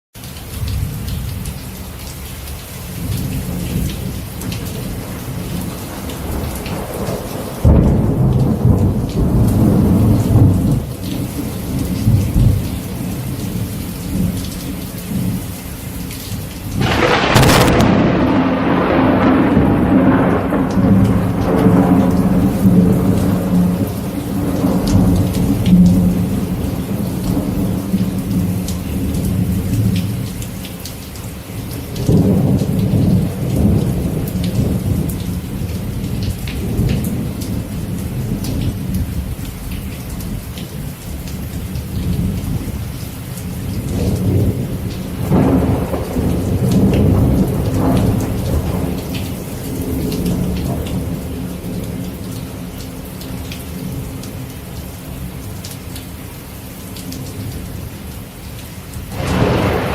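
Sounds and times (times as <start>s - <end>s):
steady rain: 0.1s - 59.9s
rolling thunder: 4.5s - 12.7s, 16.8s - 30.0s, 43.9s - 51.5s, 59.1s - 59.9s.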